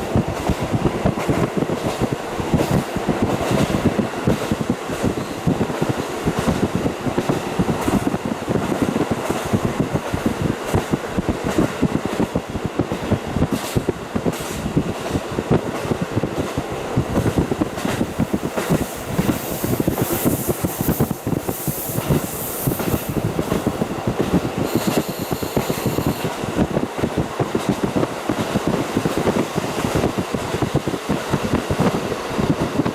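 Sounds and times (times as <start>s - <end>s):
train wheels rumbling on rails: 0.0s - 32.9s
high hiss: 18.0s - 23.9s.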